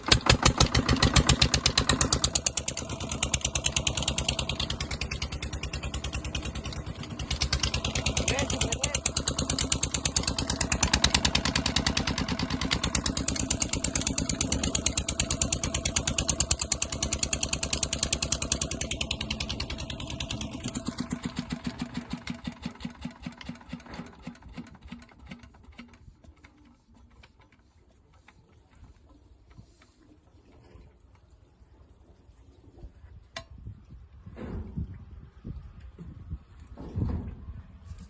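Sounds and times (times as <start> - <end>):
diesel engine running down: 0.0 - 24.4.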